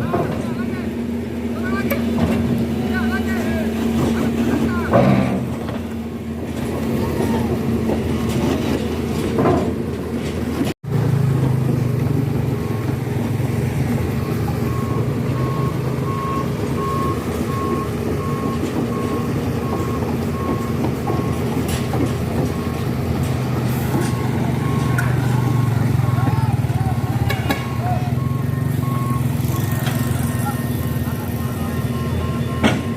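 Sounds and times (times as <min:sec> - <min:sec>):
heavy truck engine running: 0:00.0 - 0:32.9
reversing alarm beeping: 0:13.7 - 0:32.9.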